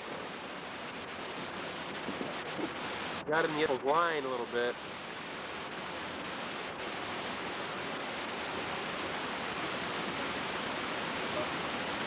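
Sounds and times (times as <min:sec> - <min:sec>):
river water rushing over rapids: 0:04.8 - 0:12.0.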